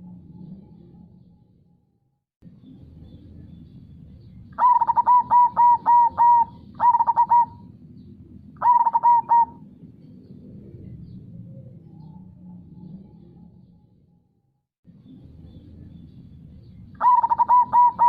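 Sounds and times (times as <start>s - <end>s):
dove cooing: 4.6s - 7.8s, 8.6s - 9.8s, 17.0s - 18.0s.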